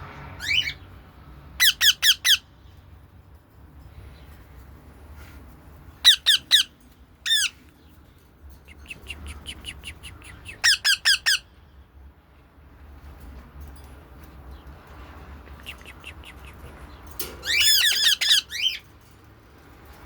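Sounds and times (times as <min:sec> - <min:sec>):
birds squawking: 0:01.6 - 0:02.5, 0:06.0 - 0:07.6, 0:08.7 - 0:11.5, 0:15.7 - 0:18.9.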